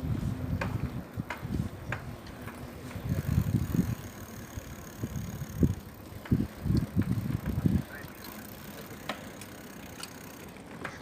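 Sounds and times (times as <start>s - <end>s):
wind gusts on microphone: 0.0s - 8.2s
bicycle riding on road: 0.0s - 11.0s.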